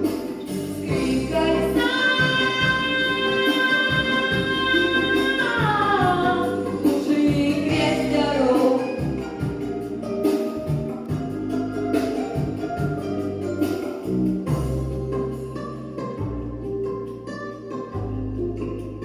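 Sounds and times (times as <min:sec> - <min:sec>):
backing track: 0:00.0 - 0:19.0
woman singing pop: 0:00.7 - 0:09.2.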